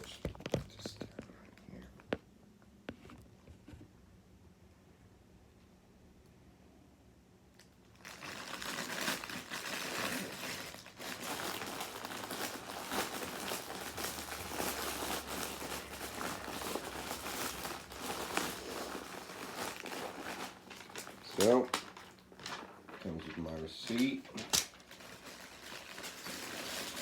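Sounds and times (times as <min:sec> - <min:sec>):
packaging crinkling: 0:07.6 - 0:27.0.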